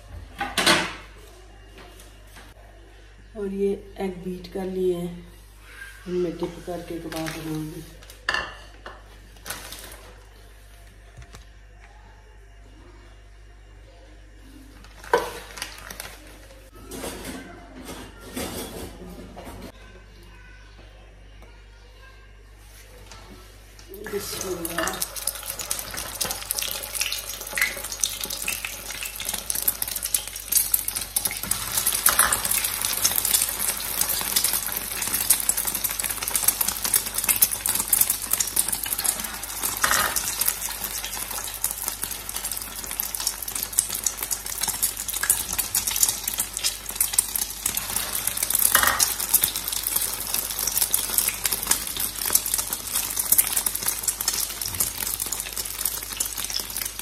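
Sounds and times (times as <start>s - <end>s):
kebabs sizzling in hot oil: 4.3s - 10.1s, 23.8s - 57.0s.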